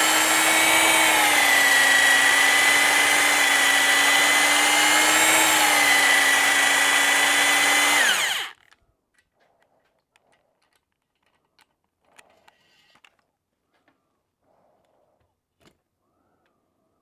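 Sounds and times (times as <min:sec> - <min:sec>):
electric drill whining: 0:00.0 - 0:08.6
faint clicks and handling noises: 0:08.6 - 0:14.0.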